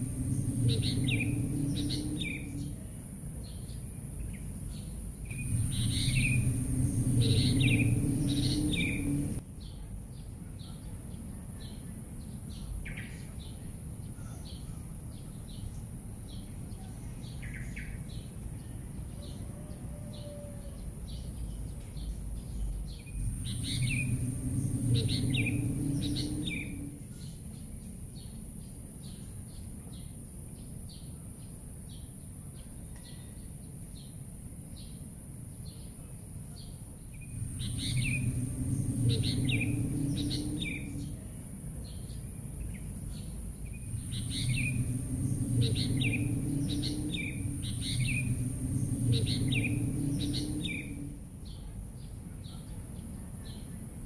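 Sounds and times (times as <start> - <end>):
steady high hiss: 0.0 - 3.2, 3.8 - 9.4, 22.7 - 27.7, 36.3 - 51.5
low rumble: 0.0 - 9.5, 20.8 - 27.6, 37.0 - 52.0
birds chirping: 0.0 - 9.8, 20.8 - 28.4, 36.6 - 53.7.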